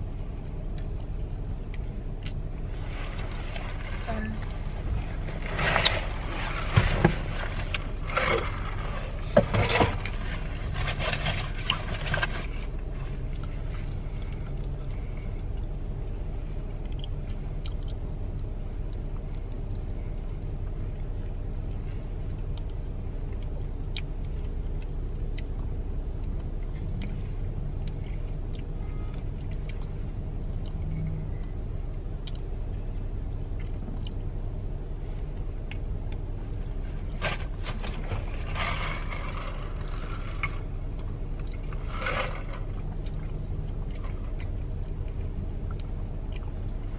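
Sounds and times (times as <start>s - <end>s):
car cabin rumble: 0.0s - 46.9s
scraping and rustling: 2.7s - 14.4s, 36.7s - 44.6s.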